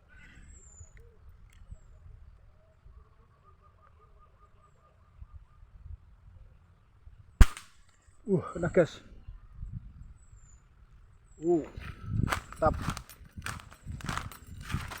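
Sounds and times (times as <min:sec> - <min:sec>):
faint birdsong: 0:00.0 - 0:15.0
air rifle crack: 0:07.4 - 0:08.0.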